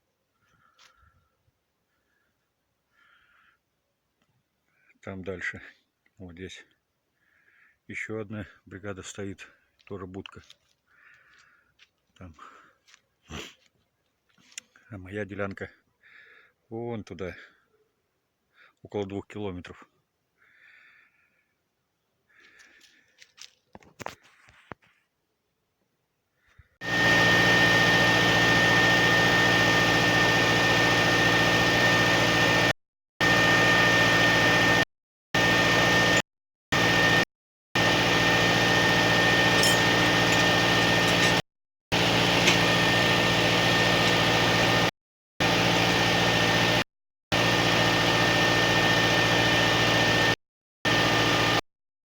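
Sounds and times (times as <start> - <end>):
engine running steadily: 26.8 - 34.8, 37.8 - 46.8
steady high whine: 26.8 - 34.8, 35.4 - 36.2, 37.8 - 46.8.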